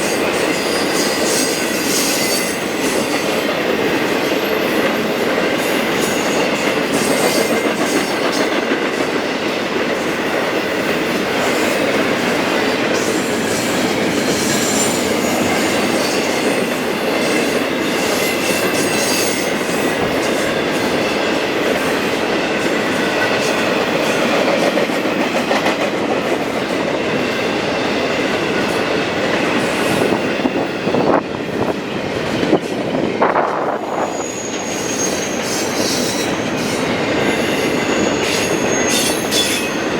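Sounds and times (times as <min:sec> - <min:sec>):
train wheels rumbling on rails: 0:00.0 - 0:39.9
wheel squeal: 0:34.0 - 0:36.4, 0:37.2 - 0:39.9.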